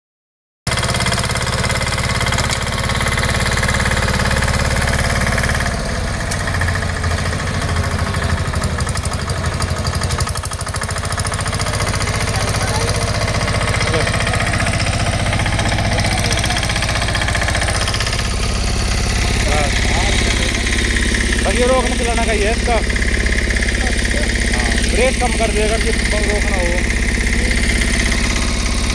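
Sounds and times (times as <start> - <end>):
diesel engine knocking: 0.7 - 28.9.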